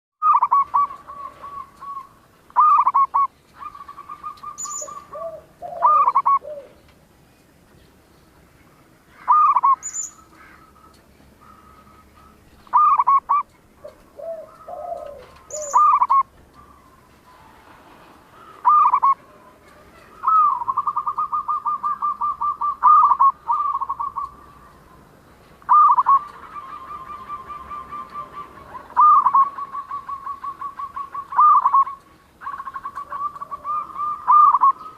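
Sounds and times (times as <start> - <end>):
dove cooing trills: 0.2 - 6.9, 9.1 - 34.9.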